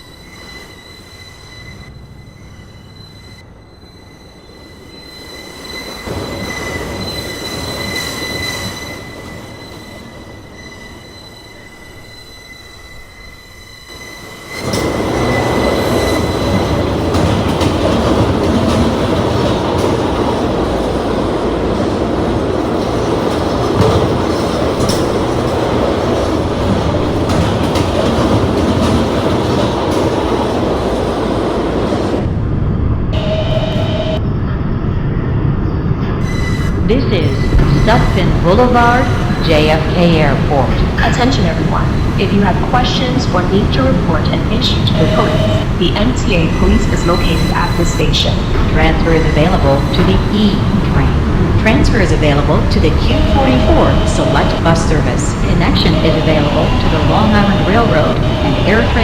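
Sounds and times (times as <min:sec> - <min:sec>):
train wheels rumbling on rails: 0:00.0 - 0:59.0
loud rush of wheels on rail: 0:13.8 - 0:59.0
high-pitched whine: 0:32.8 - 0:41.2.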